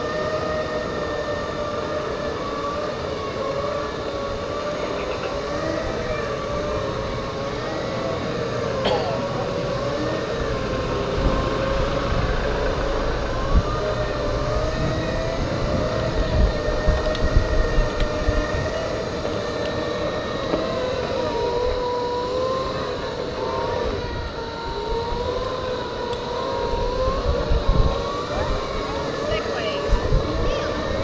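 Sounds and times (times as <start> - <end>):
electric drive motors whining: 0.0 - 31.0
wind rumble on microphone: 9.5 - 31.0.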